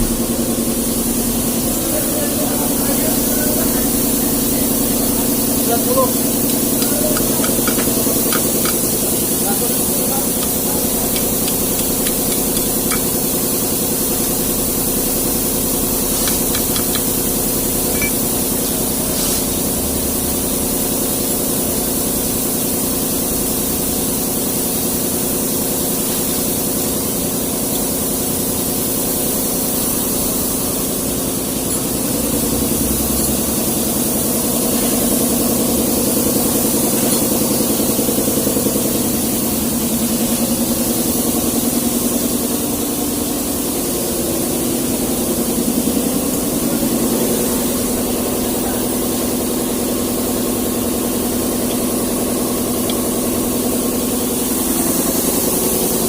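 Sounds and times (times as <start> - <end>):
diesel truck engine idling: 0.0 - 23.8.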